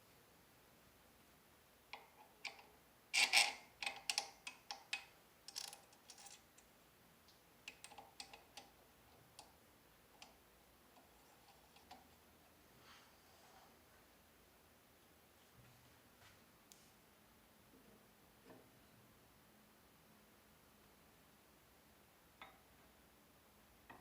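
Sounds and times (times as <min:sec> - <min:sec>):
parts clicking and knocking: 0:03.8 - 0:06.6.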